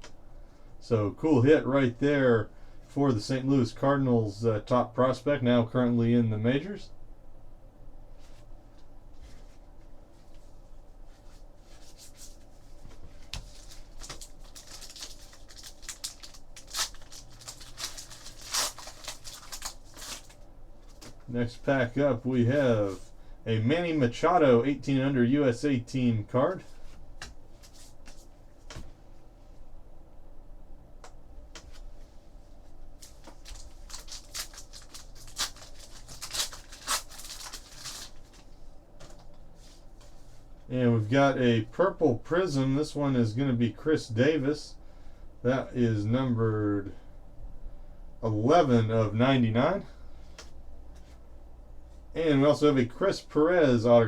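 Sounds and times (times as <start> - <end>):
cards handled: 11.7 - 21.3, 26.9 - 29.0, 33.0 - 39.4
card pack wrapper tearing: 13.4 - 21.1, 33.0 - 38.4.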